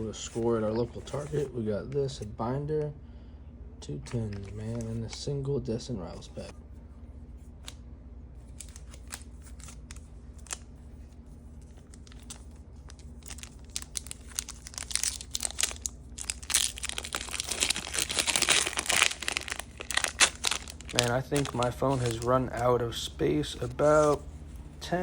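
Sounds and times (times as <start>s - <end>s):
plastic wrap crinkling: 8.5s - 10.8s, 11.5s - 22.8s.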